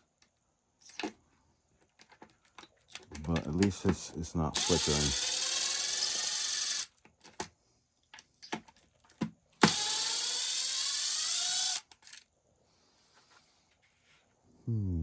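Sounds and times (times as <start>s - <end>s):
tool and parts clicking: 0.2s - 1.2s, 1.8s - 12.3s
power driver whining: 4.6s - 6.9s, 9.6s - 12.0s.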